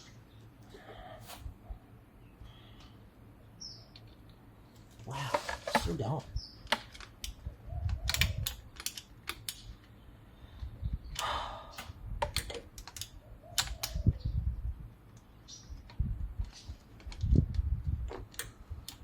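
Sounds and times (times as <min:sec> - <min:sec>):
hand tools clicking on metal: 0:06.7 - 0:09.7, 0:11.2 - 0:14.0.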